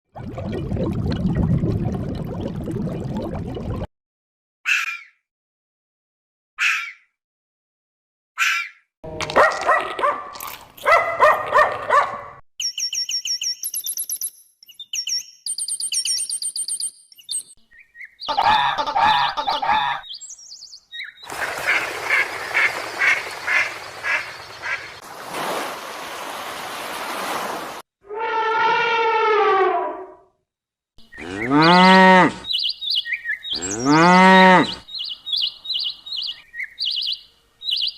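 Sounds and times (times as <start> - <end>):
loud pitched animal calls: 31.1 - 32.5
high thin bird chirping: 31.1 - 34.1, 34.9 - 37.9.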